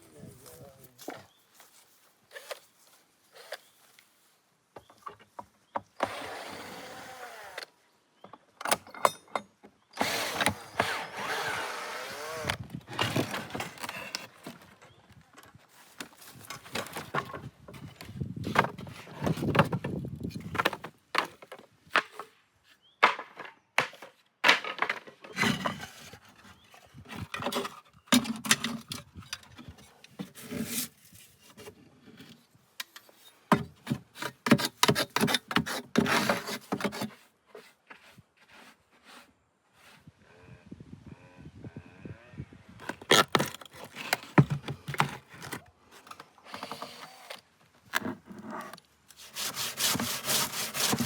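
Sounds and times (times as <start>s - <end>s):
knocking and scraping of wood: 12.4s - 40.1s, 42.8s - 51.0s.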